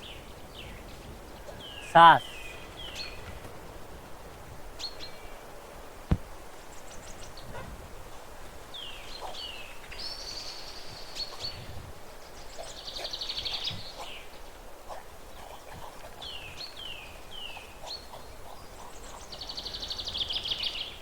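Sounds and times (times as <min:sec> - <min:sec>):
outdoor background hiss: 0:00.0 - 0:21.0
small birds calling: 0:00.0 - 0:21.0
sharp thump: 0:06.1 - 0:06.4.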